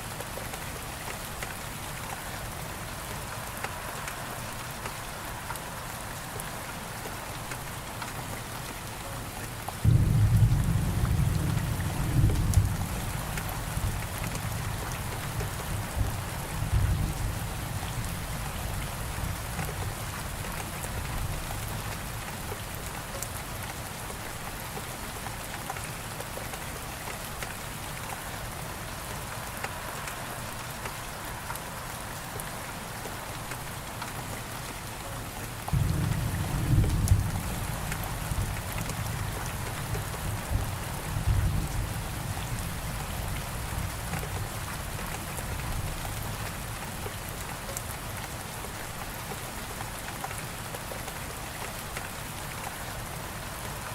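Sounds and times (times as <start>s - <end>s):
steady rain falling: 0.0s - 53.9s
thunder rumbling: 35.7s - 41.9s.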